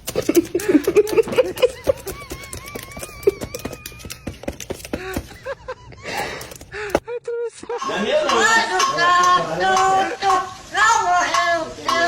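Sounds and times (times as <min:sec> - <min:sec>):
birds pecking with sharp clicks: 0:00.0 - 0:05.5.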